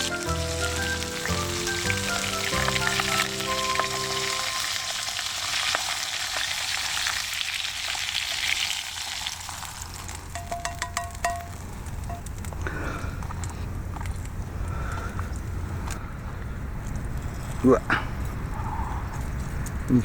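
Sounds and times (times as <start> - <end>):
food sizzling in a pot: 0.0 - 10.6
metallic clicks and clinks: 10.3 - 12.5.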